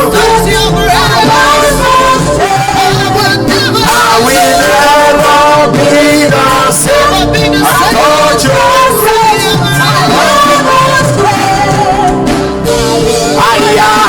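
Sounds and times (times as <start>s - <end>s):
band playing worship music: 0.0s - 14.0s
people singing: 0.0s - 14.0s.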